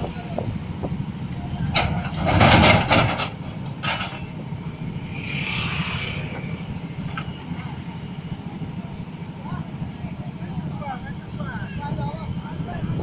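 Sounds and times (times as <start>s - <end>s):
diesel truck engine running: 0.0s - 13.0s
short rushing hiss: 5.1s - 6.5s.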